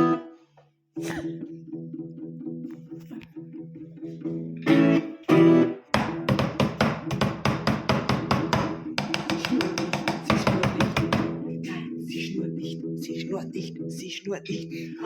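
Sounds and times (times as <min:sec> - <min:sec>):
guitar plucked notes: 0:00.0 - 0:00.4, 0:01.0 - 0:09.0
guitar strumming: 0:00.0 - 0:00.4, 0:01.2 - 0:09.0
loud ringing guitar chords: 0:04.4 - 0:06.3.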